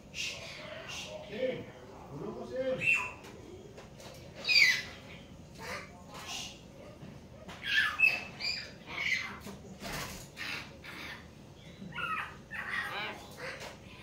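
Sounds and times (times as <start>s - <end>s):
mynas squawking harsh calls: 7.6s - 9.5s, 10.3s - 14.0s.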